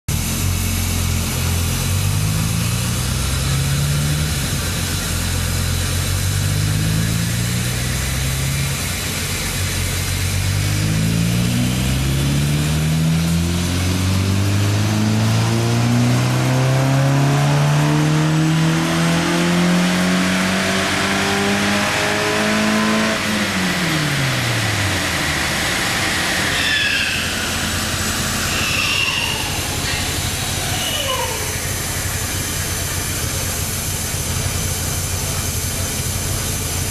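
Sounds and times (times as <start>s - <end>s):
car engine accelerating through gears: 0.2s - 36.9s
high squeals of slowing rollers: 25.9s - 33.0s.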